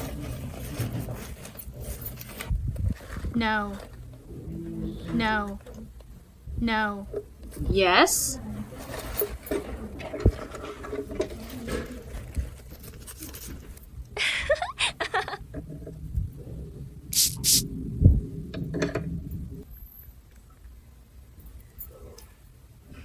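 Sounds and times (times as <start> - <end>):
toy pieces clicking and rattling: 17.2 - 17.6.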